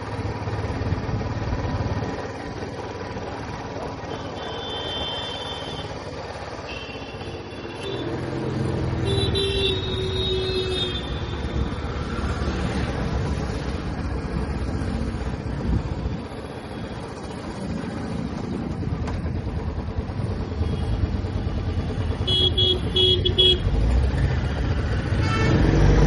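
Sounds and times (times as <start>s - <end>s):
motorcycle engine rumbling: 0.0s - 26.0s
vehicle horns honking: 4.1s - 6.0s, 6.7s - 8.2s, 9.0s - 11.4s, 22.2s - 23.7s, 25.2s - 25.7s.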